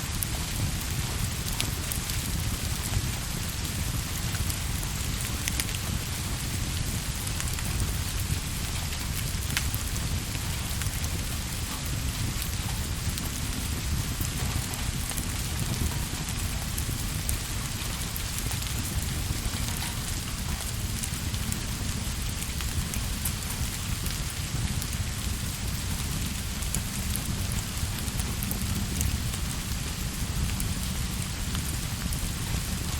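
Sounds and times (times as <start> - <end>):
rain falling: 0.0 - 32.9
raindrop ticks: 8.6 - 32.8.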